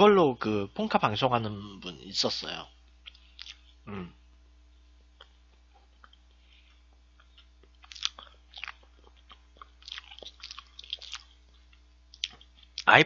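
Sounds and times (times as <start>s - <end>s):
man chewing mouth sounds: 2.9s - 4.1s, 5.2s - 12.9s.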